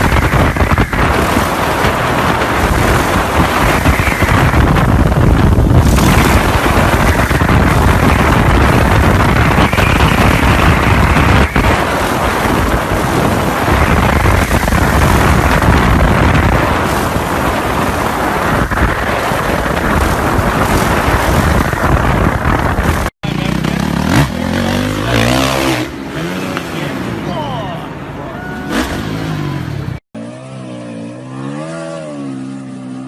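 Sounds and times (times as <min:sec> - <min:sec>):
wind noise on microphone: 0:00.0 - 0:26.4.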